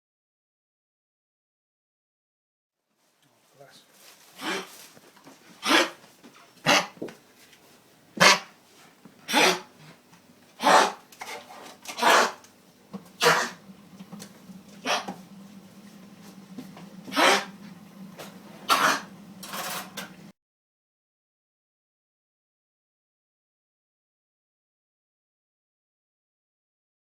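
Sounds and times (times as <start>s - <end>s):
dog hacking coughs: 5.6s - 6.0s, 6.6s - 7.0s, 8.2s - 8.5s, 9.2s - 9.8s, 10.6s - 12.4s, 13.2s - 13.6s, 17.1s - 17.5s, 18.7s - 19.1s.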